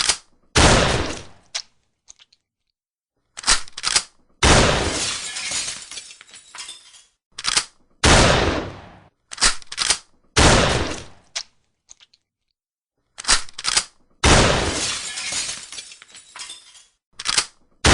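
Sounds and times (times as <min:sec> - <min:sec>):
shotgun blasts: 0:00.6 - 0:01.4, 0:04.4 - 0:05.0, 0:08.0 - 0:09.1, 0:10.4 - 0:11.2, 0:14.2 - 0:14.8.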